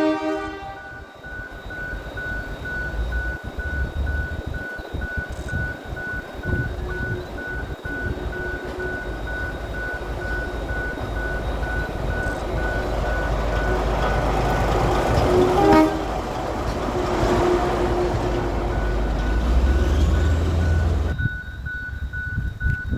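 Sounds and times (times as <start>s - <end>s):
train horn blast: 0.0s - 1.2s, 12.4s - 21.1s
diesel locomotive running: 0.0s - 22.9s.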